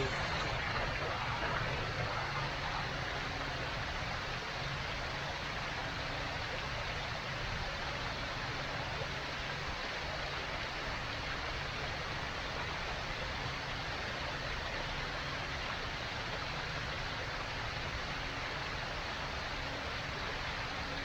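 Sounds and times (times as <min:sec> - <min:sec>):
steady rushing noise: 0:00.0 - 0:04.8.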